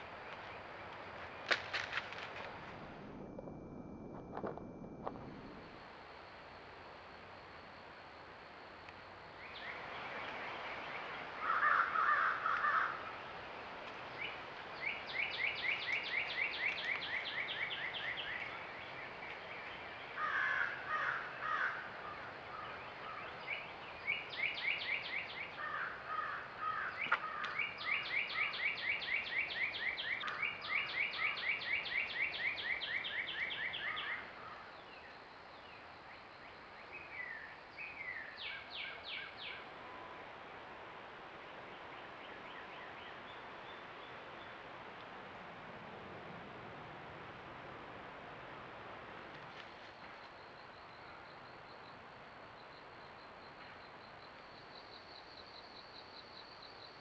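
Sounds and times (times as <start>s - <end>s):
harsh lower bird calls: 14.1s - 35.8s.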